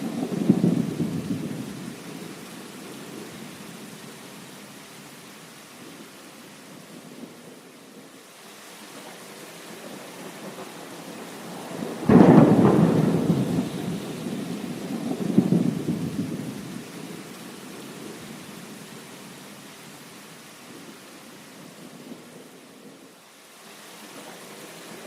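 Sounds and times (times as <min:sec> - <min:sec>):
thunder rumbling: 0:00.0 - 0:03.8, 0:09.7 - 0:18.2
heavy rain: 0:00.0 - 0:25.0
loud thunder clap: 0:12.0 - 0:16.4.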